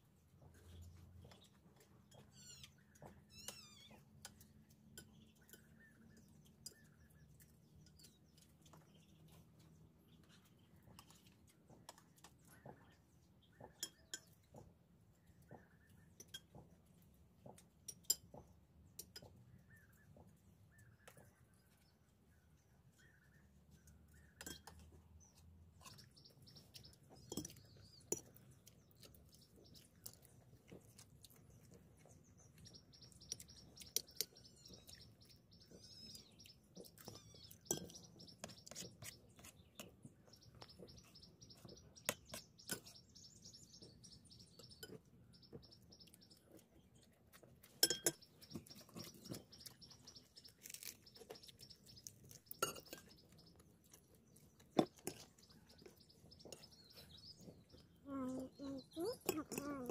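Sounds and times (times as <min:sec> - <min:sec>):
small birds chirping: 0:00.0 - 0:59.9
spoons clinking on plates: 0:47.7 - 0:49.0, 0:52.5 - 0:53.3.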